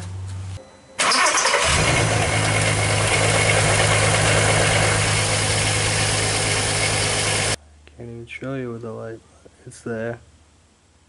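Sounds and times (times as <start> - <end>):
car engine starting and idling: 1.0 - 7.6.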